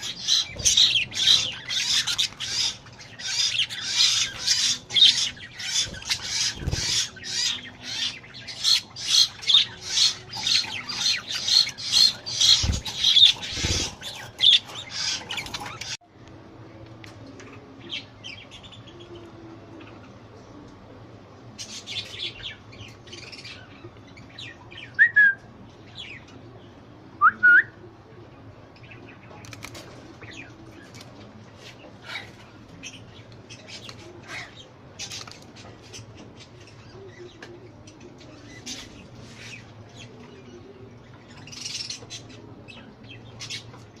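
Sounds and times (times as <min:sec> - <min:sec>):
budgerigars chirping: 0:00.0 - 0:16.0.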